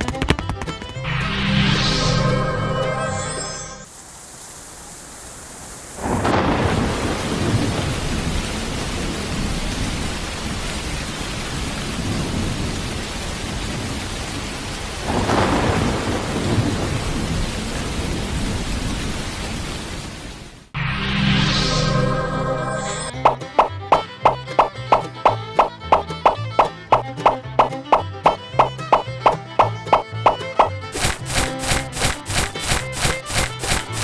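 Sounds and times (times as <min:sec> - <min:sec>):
heavy rain: 0:03.8 - 0:20.8, 0:28.0 - 0:34.0
rolling thunder: 0:06.0 - 0:10.2, 0:15.0 - 0:19.2.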